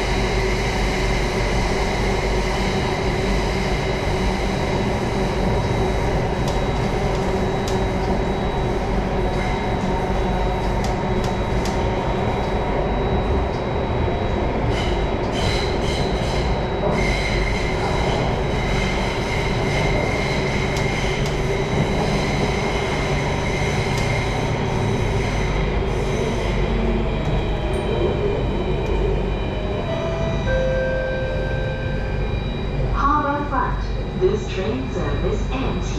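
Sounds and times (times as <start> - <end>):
train rumble of wheels and motors: 0.0 - 35.9
train whine: 0.0 - 35.9.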